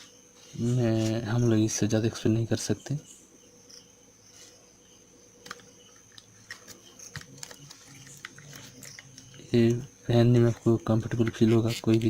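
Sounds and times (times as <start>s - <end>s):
faint steady hum: 0.0s - 12.0s
plastic headphones clicking: 5.4s - 9.8s.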